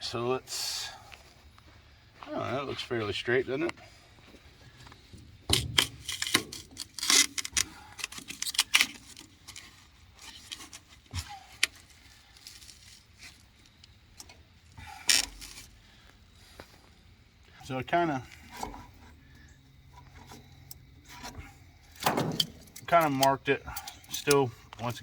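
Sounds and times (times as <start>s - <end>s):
metal pipe fittings clinking: 20.0s - 25.0s.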